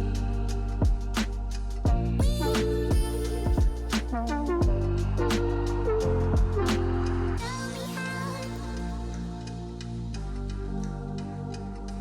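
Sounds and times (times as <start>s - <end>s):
sustained bass: 0.0s - 12.0s
bass drum thumps: 0.8s - 7.0s.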